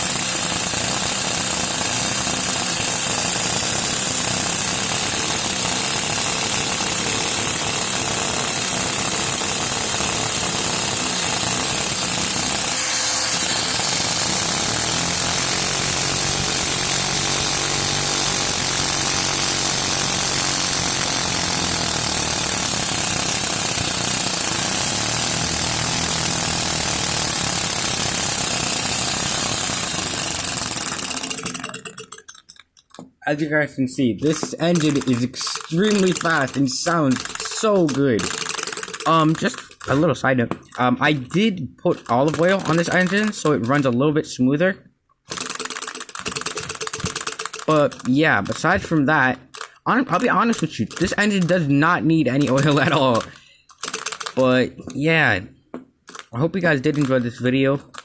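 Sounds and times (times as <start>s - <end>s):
vacuum cleaner whine: 12.6s - 22.2s
plastic engine clatter: 25.4s - 33.2s, 34.3s - 43.9s, 45.3s - 48.9s, 49.5s - 51.7s, 52.3s - 55.0s, 56.1s - 58.0s.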